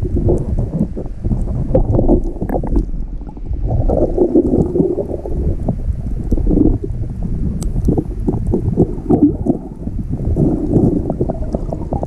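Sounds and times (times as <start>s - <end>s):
diver exhaling bubbles: 0.0s - 12.0s
muffled underwater rumble: 0.0s - 12.0s.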